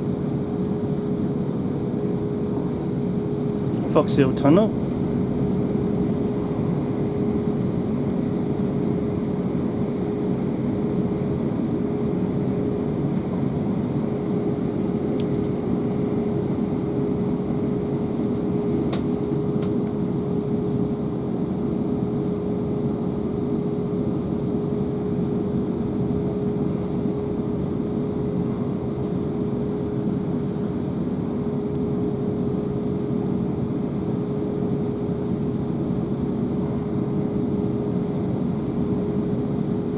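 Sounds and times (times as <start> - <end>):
steady hum: 0.0 - 20.6.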